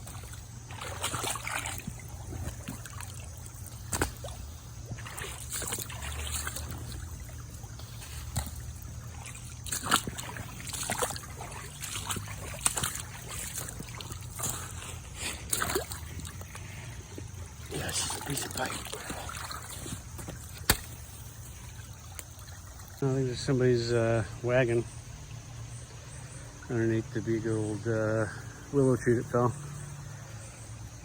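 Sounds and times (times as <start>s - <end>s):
creek water trickling: 0.0s - 31.0s
water splashes: 0.0s - 31.0s.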